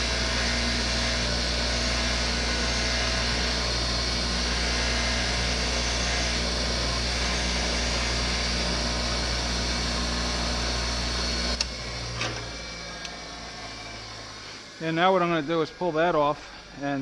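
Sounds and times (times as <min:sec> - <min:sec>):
electric power tool running: 0:00.0 - 0:17.0
power tool switch click: 0:11.6 - 0:13.2.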